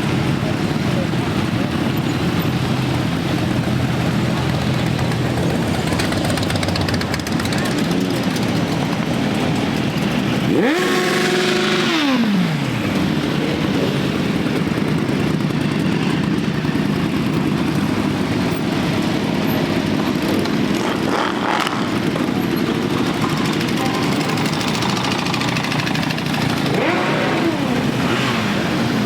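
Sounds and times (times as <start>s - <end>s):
motorcycle engine revving: 0.0s - 29.0s
motorcycle engines rumbling: 0.0s - 29.0s.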